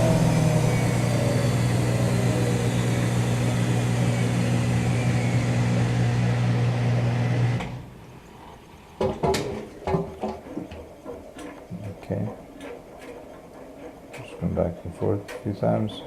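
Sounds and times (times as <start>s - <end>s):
washing machine spin winding down: 0.0s - 8.1s.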